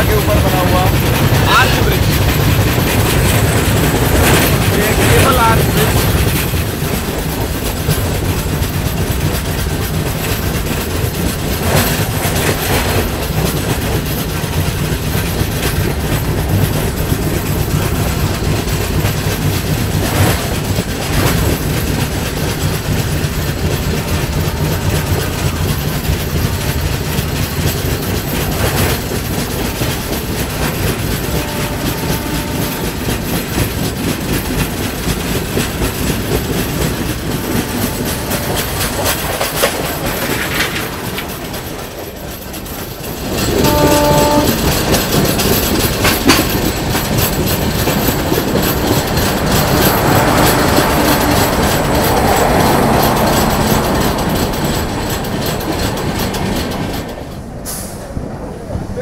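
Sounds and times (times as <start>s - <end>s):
rail joint clacks: 0.0s - 59.0s
train wheels rumbling on rail: 0.0s - 59.0s.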